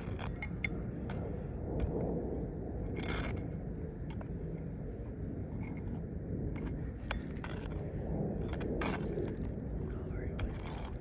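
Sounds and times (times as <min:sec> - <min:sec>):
steady low rumble: 0:00.0 - 0:11.0
scrape on shingle roof: 0:06.6 - 0:11.0.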